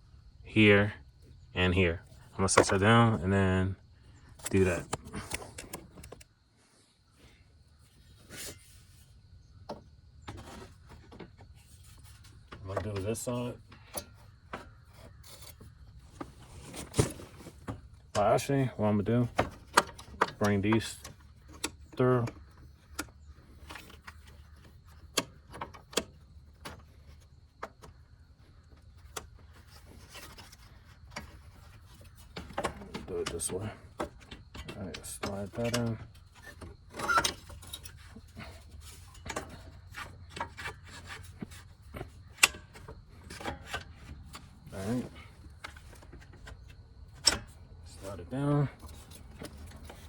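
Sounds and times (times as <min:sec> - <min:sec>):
light clicks of car parts: 0:04.4 - 0:06.3, 0:12.0 - 0:50.0.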